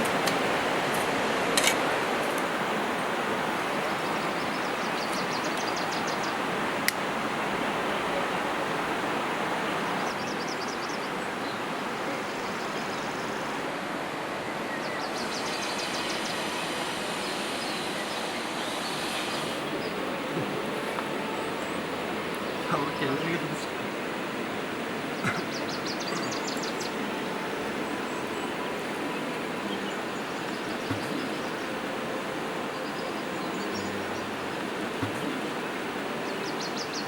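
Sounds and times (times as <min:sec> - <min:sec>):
high chirping trills: 0:14.5 - 0:20.5.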